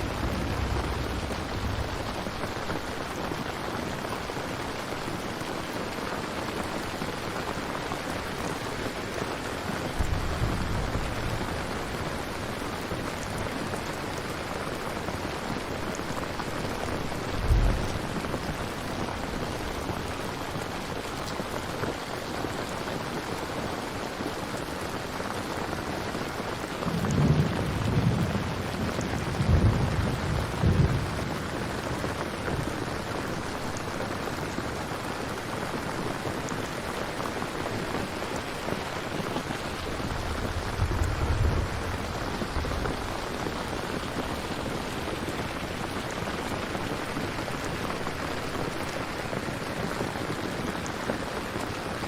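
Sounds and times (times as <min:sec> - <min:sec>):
thunder rumbling: 0:00.0 - 0:03.2, 0:09.7 - 0:14.5, 0:15.9 - 0:20.6, 0:26.8 - 0:33.7, 0:38.4 - 0:46.1
steady rain: 0:00.0 - 0:52.0.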